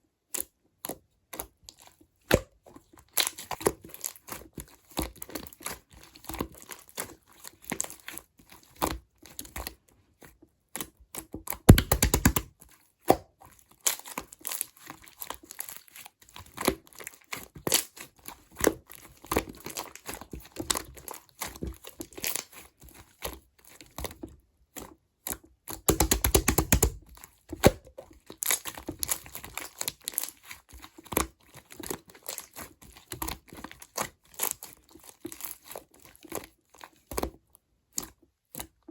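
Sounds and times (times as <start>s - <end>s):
rapid crackling popping: 11.7s - 12.4s
slime being squished by hand: 11.7s - 12.5s, 25.8s - 30.5s
sticky clicks and air pops: 11.7s - 12.5s, 25.9s - 27.0s.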